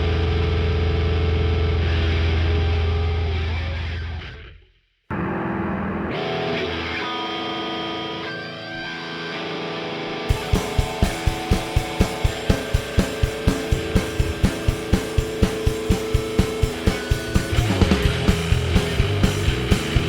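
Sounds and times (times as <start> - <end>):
electric guitar: 0.0 - 20.0
fast drum beat: 10.3 - 20.0.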